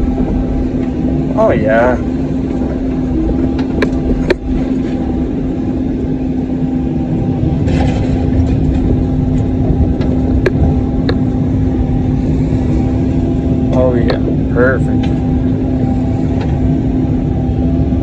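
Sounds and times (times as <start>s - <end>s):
excavator diesel engine running: 0.0s - 18.0s
sharp clicks and knocks: 2.6s - 4.6s, 7.7s - 11.2s.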